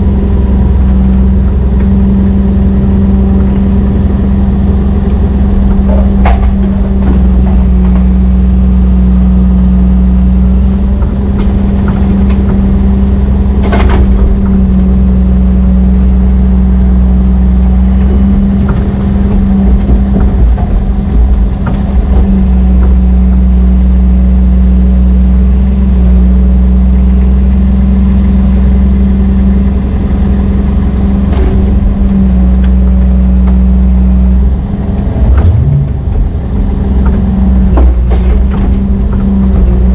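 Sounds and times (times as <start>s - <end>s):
heavy diesel engine running: 0.0s - 39.9s
sharp knocks: 5.2s - 9.0s, 18.0s - 23.5s.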